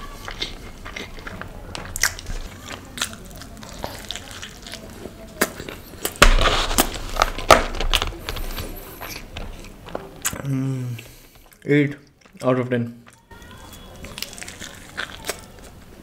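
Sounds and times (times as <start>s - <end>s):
wet mouth sounds: 0.0s - 7.0s
crisp chewing: 0.0s - 16.0s.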